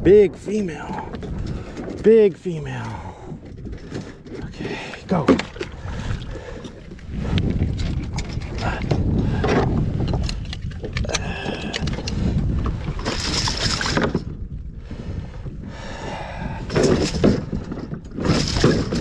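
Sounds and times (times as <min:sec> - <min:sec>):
wind rumbling on microphone: 0:00.0 - 0:19.0
water splashing around kayak: 0:02.6 - 0:15.3.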